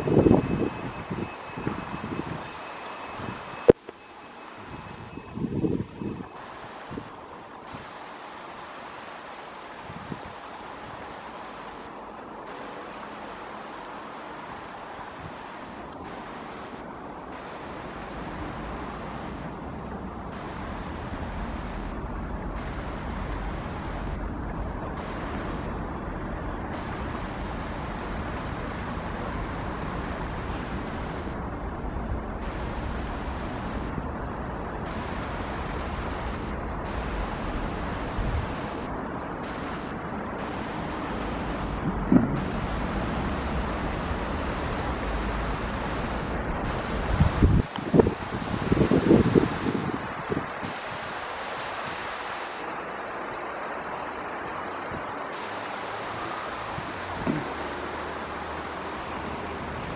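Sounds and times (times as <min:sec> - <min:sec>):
wind rumble on microphone: 0:00.0 - 0:03.7, 0:04.5 - 0:08.1, 0:09.6 - 0:12.6, 0:13.8 - 0:55.5, 0:56.6 - 0:59.9
heavy rain falling: 0:00.0 - 0:59.9
brief thump: 0:41.8 - 0:42.4.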